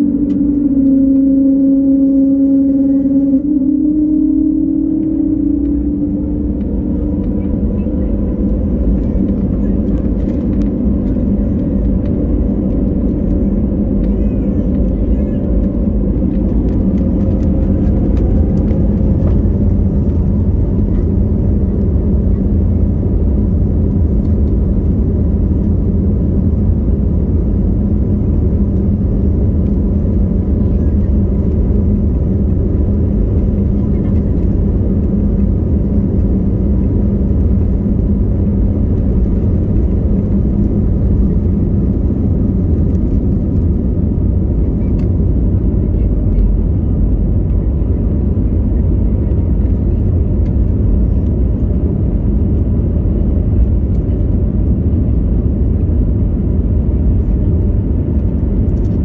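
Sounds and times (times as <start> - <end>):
faint rising tone: 0.0 - 6.4
jet engines droning: 0.0 - 59.0.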